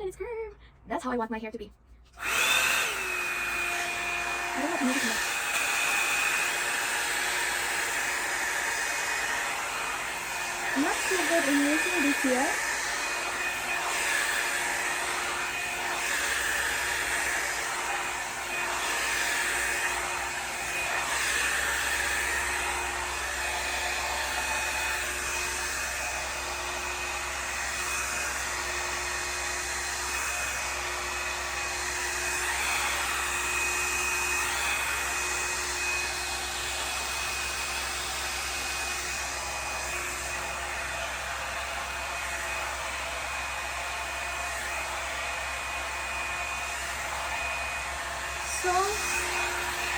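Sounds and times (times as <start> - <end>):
hot-air brush blowing: 2.1 - 49.9.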